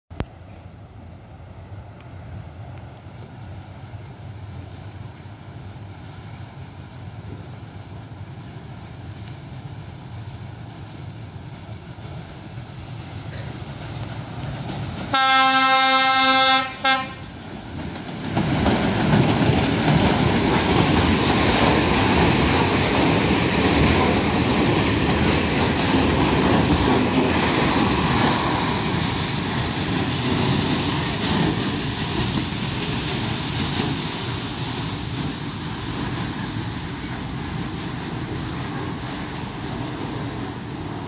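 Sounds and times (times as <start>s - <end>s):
freight train wheels rumbling and clacking: 0.1s - 41.0s.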